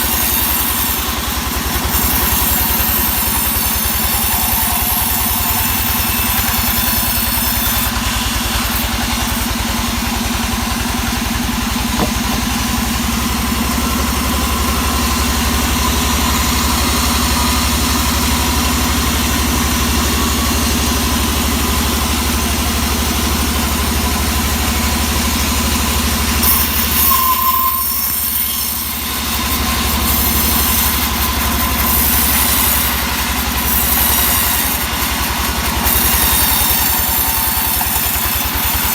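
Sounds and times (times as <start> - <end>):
engine running steadily: 0.0 - 27.0.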